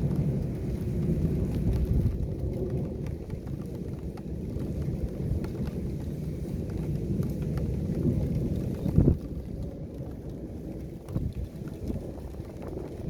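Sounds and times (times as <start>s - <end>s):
heavy rain rumble: 0.0s - 13.0s.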